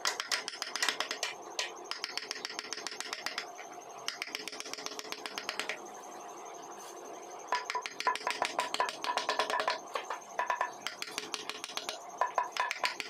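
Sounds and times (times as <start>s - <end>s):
chisel tapping into wood: 7.6s - 9.8s.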